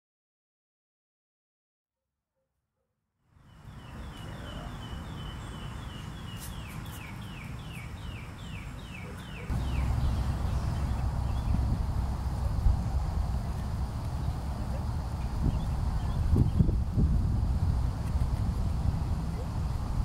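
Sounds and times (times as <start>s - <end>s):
songbird whistling: 3.6s - 11.6s
low outdoor rumble: 7.1s - 20.0s.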